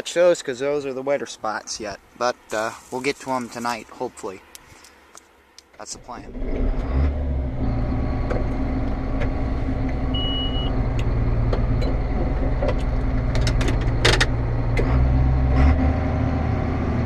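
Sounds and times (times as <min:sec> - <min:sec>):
tractor engine running: 0:06.0 - 0:17.0.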